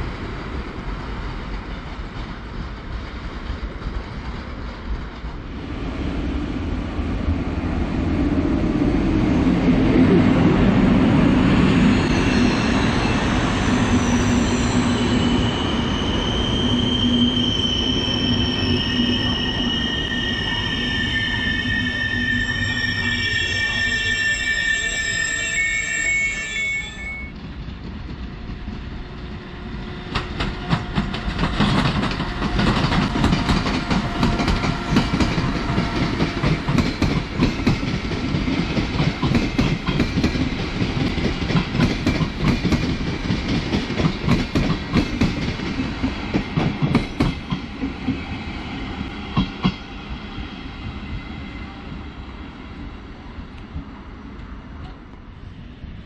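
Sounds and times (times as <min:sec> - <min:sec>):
train brake squeal: 0:11.8 - 0:27.4
train wheels clattering over rails: 0:27.3 - 0:48.3.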